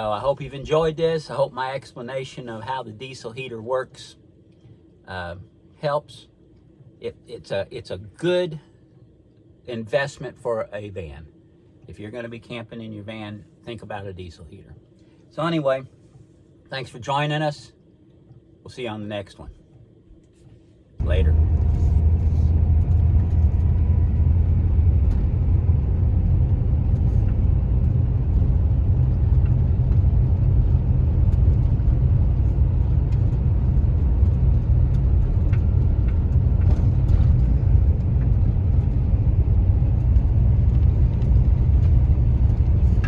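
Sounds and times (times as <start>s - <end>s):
van engine and road rumble: 0.0s - 3.8s, 21.0s - 43.0s.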